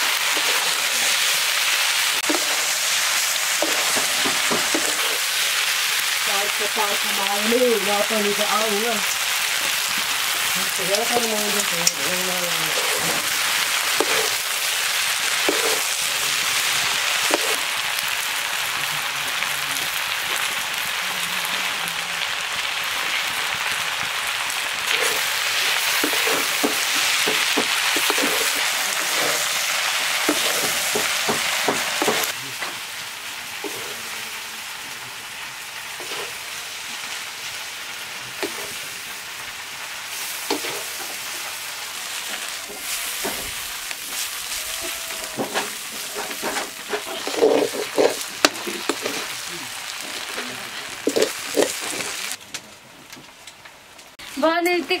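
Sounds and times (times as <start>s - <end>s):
food sizzling in a pan: 0.0s - 52.4s, 53.6s - 55.0s
utensil tapping and scraping pan: 13.9s - 14.4s, 15.4s - 15.9s, 25.9s - 29.4s, 30.2s - 32.3s, 44.8s - 49.3s, 51.0s - 52.0s.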